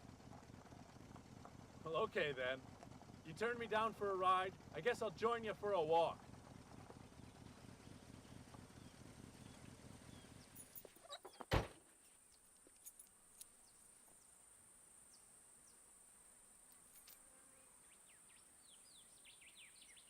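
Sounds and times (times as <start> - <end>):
car engine idling: 0.0 - 10.7
bird chirps: 17.9 - 20.0.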